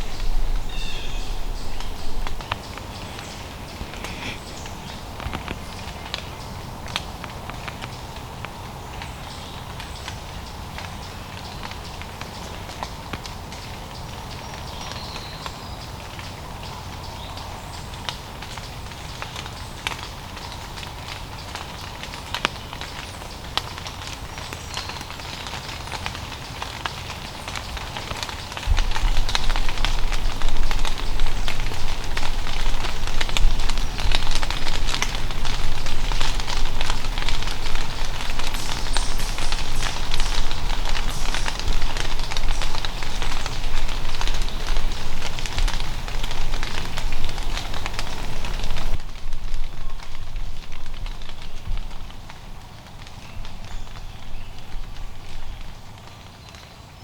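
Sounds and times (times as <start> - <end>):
low rumble: 0.0 - 5.5
low background hiss: 0.0 - 57.0
sharp ticks and crackles: 0.0 - 57.0.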